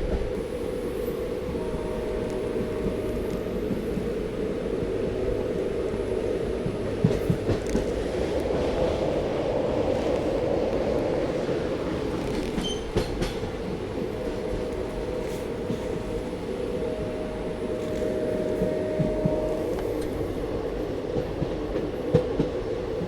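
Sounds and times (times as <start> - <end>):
train rumbling along track: 0.0 - 23.0
wheels clicking over rail joints: 12.0 - 14.8.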